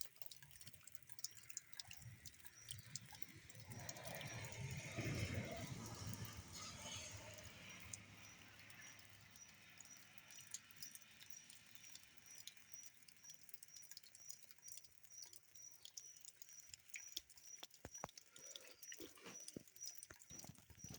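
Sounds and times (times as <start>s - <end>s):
faint clicks: 8.3s - 20.9s.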